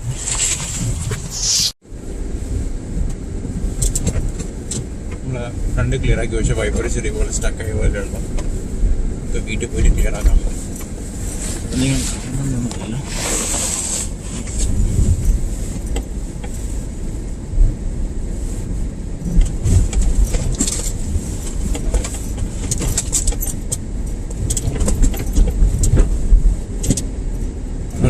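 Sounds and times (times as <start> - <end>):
road and tyre rumble: 0.0 - 28.0
clicks and rattles: 19.3 - 26.2.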